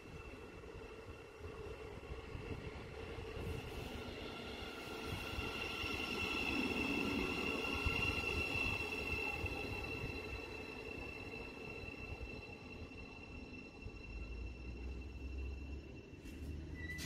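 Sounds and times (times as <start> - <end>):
train low rumble: 0.0 - 17.0
high-pitched whine: 4.8 - 17.0.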